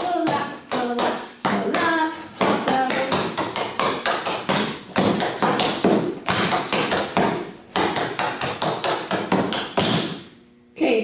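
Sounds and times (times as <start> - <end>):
shoe taps on hard floor: 2.4 - 10.2.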